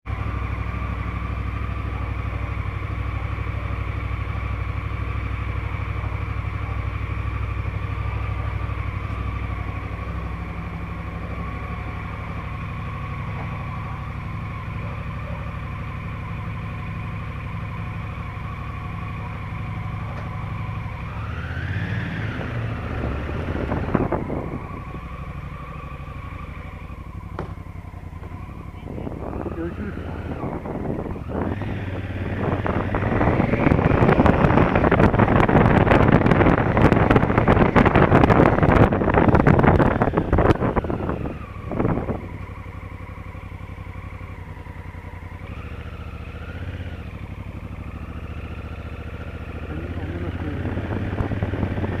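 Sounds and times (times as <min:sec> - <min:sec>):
motorcycle engine idling: 0:00.0 - 0:52.0.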